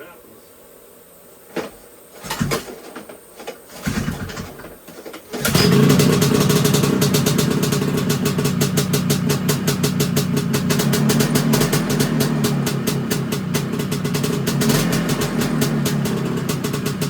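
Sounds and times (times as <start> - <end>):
engine cranking: 2.2 - 3.0, 3.7 - 17.0
snowmobile engine running: 5.4 - 17.0.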